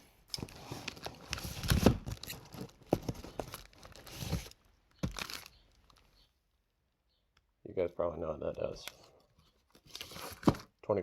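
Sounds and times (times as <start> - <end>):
cardboard and wrapping crinkling: 0.2 - 6.3, 9.6 - 10.7.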